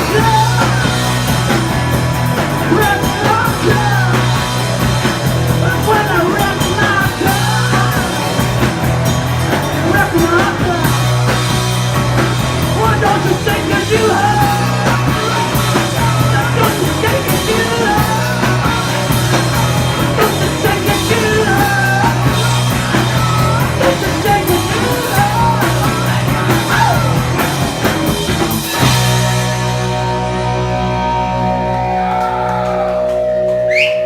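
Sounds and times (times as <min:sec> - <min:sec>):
shouted sung lead vocal: 0:00.0 - 0:01.5, 0:02.5 - 0:04.7, 0:05.6 - 0:08.4, 0:09.8 - 0:11.2, 0:12.6 - 0:27.5
rock band playing loudly: 0:00.0 - 0:34.0.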